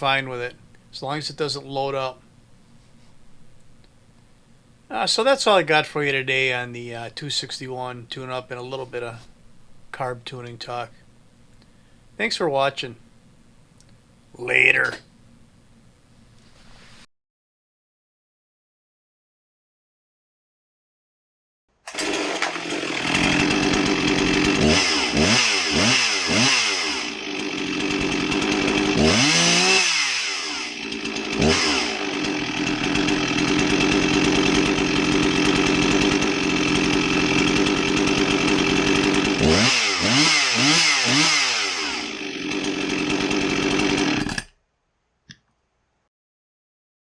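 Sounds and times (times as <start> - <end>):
chainsaw revving: 21.9 - 44.5.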